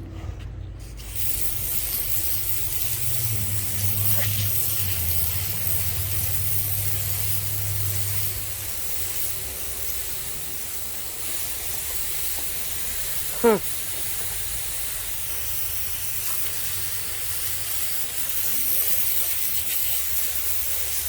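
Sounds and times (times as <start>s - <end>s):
saw blade hissing through log: 0.8s - 21.0s
sawmill engine running: 1.0s - 21.0s.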